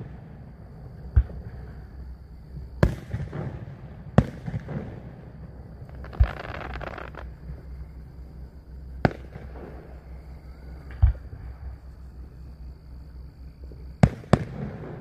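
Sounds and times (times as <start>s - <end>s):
firework shells booming: 2.8s - 7.4s, 9.0s - 10.0s, 14.0s - 15.0s
fireworks crackling: 5.7s - 7.6s.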